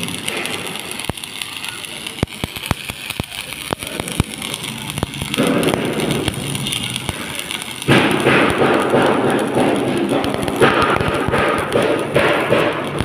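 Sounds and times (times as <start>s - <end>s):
arc welding crackling: 0.0s - 13.0s.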